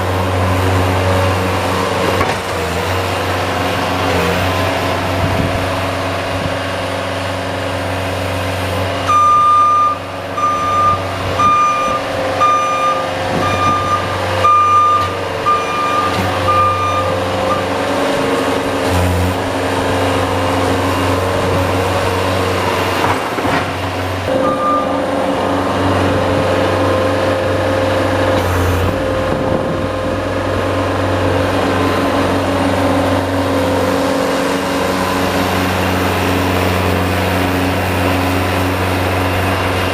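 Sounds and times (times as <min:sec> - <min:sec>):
high reverse alarm beeps: 0:09.1 - 0:17.6, 0:24.3 - 0:25.1
vehicle engine running: 0:16.3 - 0:39.9.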